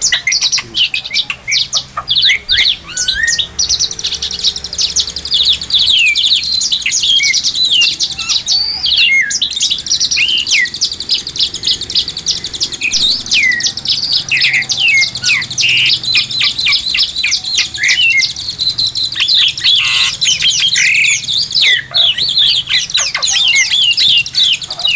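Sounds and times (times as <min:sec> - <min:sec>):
songbird singing varied song: 0:00.0 - 0:24.9.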